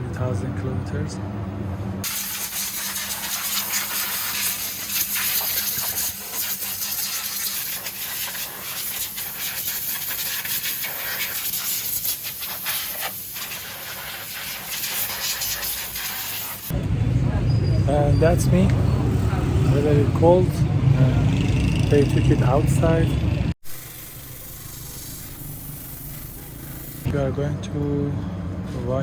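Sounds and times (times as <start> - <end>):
loud uneven hiss: 2.0 - 16.7.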